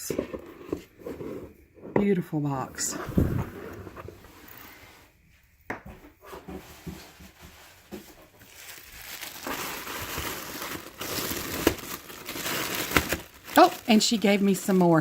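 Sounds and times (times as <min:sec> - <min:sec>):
wrapping crinkling and rustling: 0:06.7 - 0:15.0.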